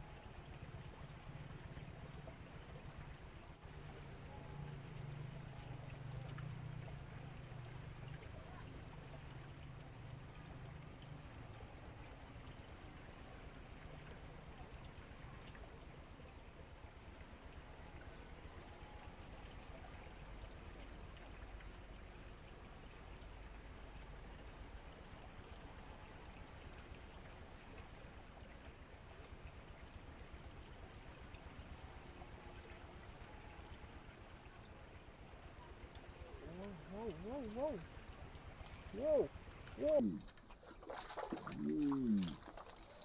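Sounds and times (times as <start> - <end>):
faint outdoor background noise: 0.0 - 43.0
insect high-pitched buzz: 36.3 - 40.4.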